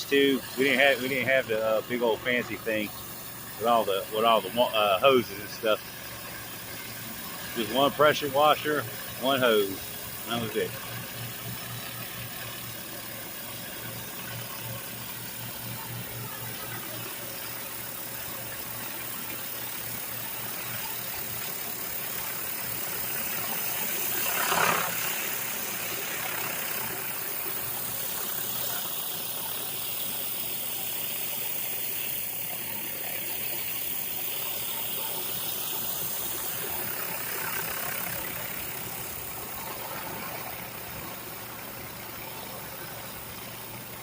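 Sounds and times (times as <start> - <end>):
pressure washer engine running: 0.0 - 44.0
surface cleaner spraying concrete: 0.0 - 44.0.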